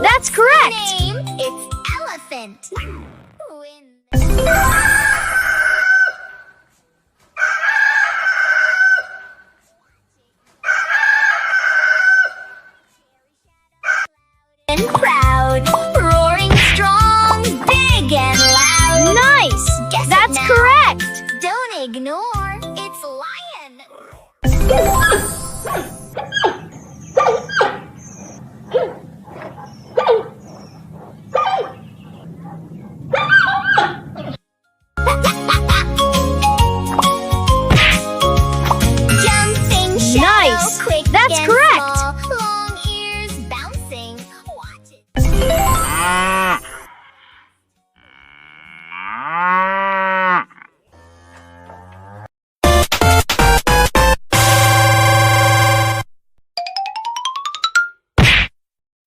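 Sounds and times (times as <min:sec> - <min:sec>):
dog barking: 0:26.2 - 0:34.3.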